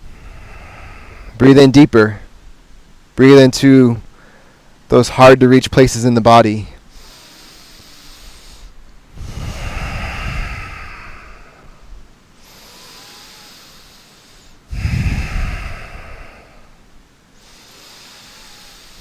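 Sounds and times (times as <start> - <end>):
breath buffeting microphone: 0.0 - 1.4, 6.8 - 19.0
deep breathing close to microphone: 0.0 - 1.4, 4.0 - 4.8, 6.8 - 19.0.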